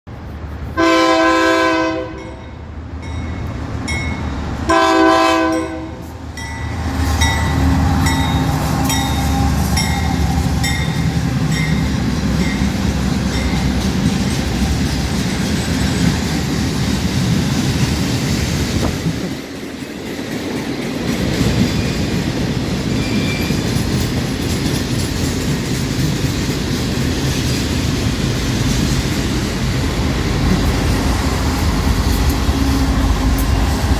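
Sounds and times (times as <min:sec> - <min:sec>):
locomotive horn blasts: 0:00.8 - 0:02.5, 0:04.7 - 0:06.1.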